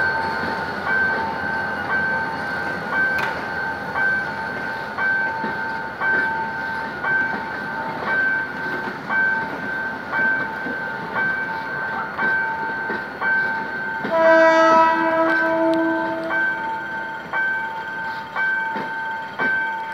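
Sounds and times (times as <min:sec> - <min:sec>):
train coaches rumbling past: 0:00.0 - 0:19.9
warning bell dinging: 0:00.0 - 0:19.9
train horn: 0:14.0 - 0:16.9.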